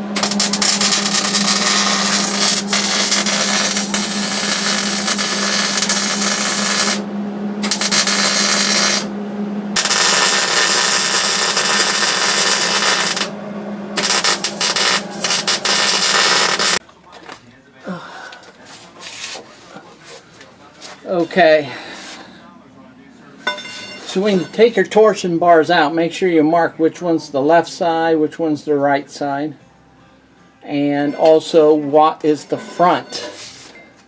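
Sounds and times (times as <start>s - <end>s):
electric power tool running: 0.0s - 16.8s
steady low hum: 0.0s - 34.0s.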